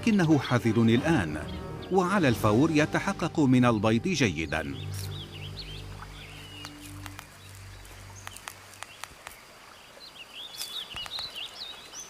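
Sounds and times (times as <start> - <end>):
small bird chirping: 4.7 - 12.0.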